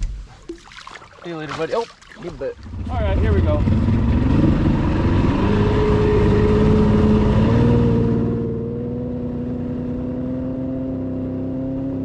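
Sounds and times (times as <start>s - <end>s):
wind and water rushing: 0.0s - 7.5s
outboard motor droning: 0.4s - 10.0s.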